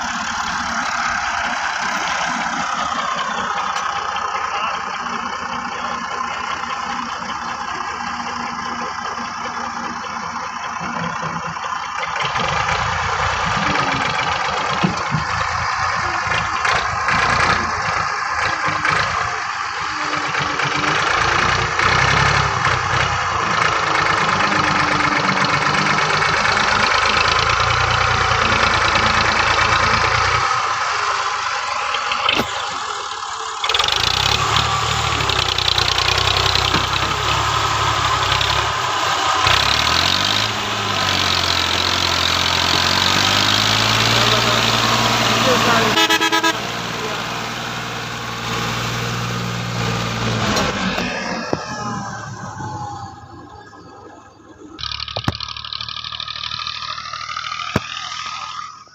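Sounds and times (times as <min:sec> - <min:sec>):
tractor diesel engine running: 0:00.0 - 0:58.9.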